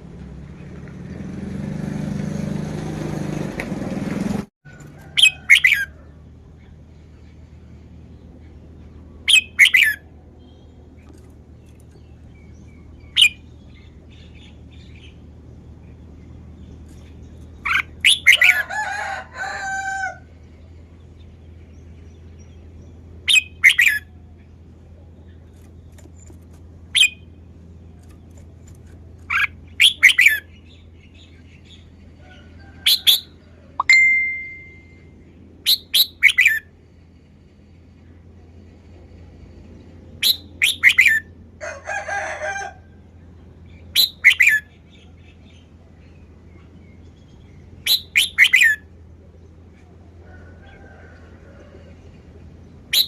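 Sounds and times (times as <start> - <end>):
steady low hum: 5.9 - 32.7, 33.3 - 40.6
bird singing bright phrases: 9.1 - 18.6, 21.1 - 24.7, 32.8 - 35.1, 43.8 - 48.8.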